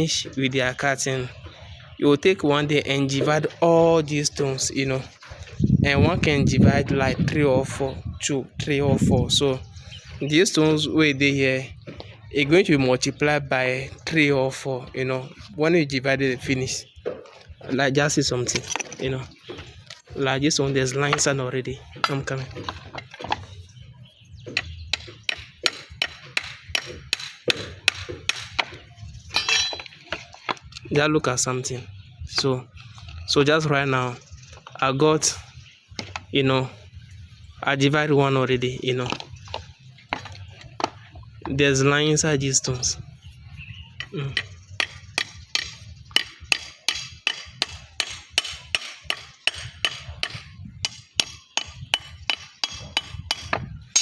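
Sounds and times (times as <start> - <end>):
hammer striking stone: 25.0 - 28.8, 44.8 - 54.0.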